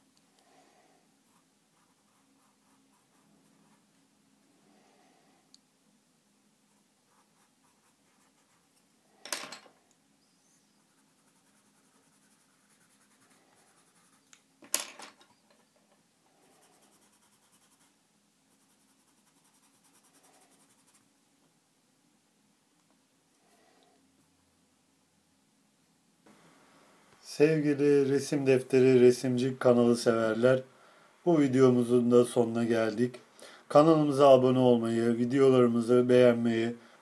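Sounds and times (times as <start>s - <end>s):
drawing tool scratching paper: 10.8s - 14.2s.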